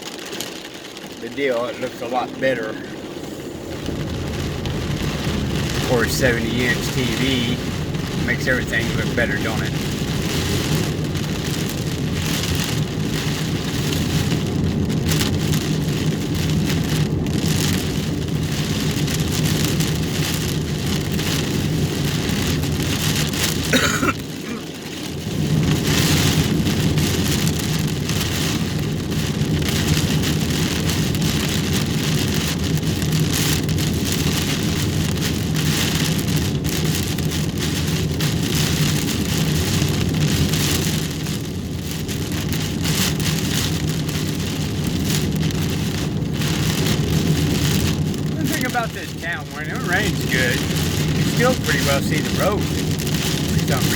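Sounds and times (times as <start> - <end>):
heavy rain on car roof: 0.0 - 53.9
low car drone: 1.0 - 16.0, 44.8 - 53.9.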